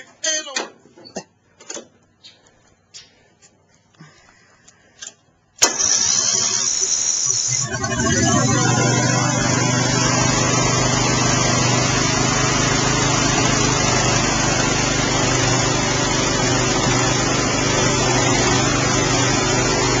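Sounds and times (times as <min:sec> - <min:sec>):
lawn tractor engine running: 0:05.6 - 0:20.0.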